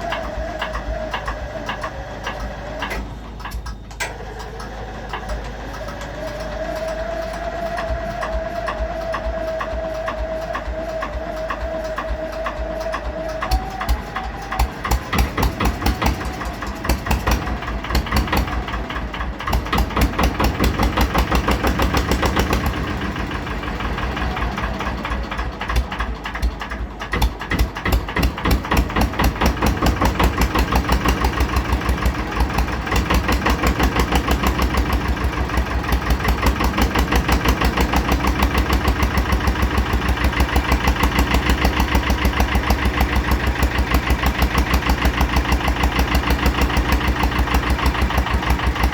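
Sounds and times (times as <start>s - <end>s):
diesel engine idling: 0.0s - 48.9s.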